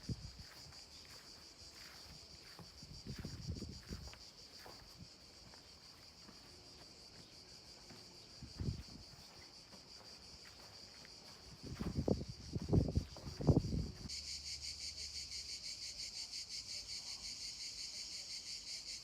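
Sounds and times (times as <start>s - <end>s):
insects chirring: 0.0s - 19.0s
low rustles and thumps: 8.4s - 9.1s, 11.6s - 14.1s.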